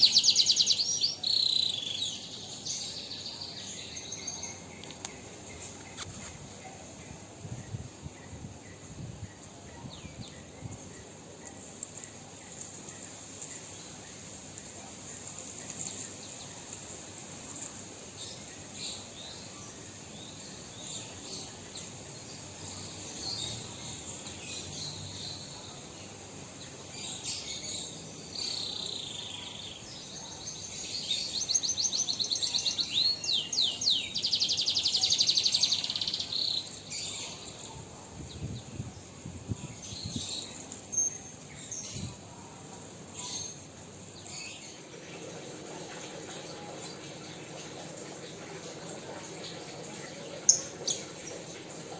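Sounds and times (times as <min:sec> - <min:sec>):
fast trilling birdsong: 0:00.0 - 0:06.3
caged songbirds chirping: 0:00.0 - 0:51.9.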